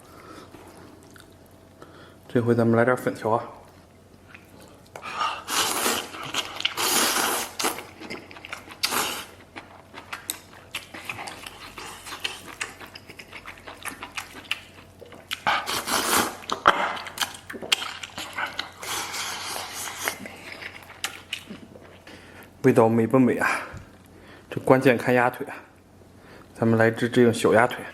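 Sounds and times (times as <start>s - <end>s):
person slurping noodles: 5.3s - 7.8s, 8.8s - 9.4s, 15.5s - 16.5s
wet chewing and smacking: 6.0s - 22.2s.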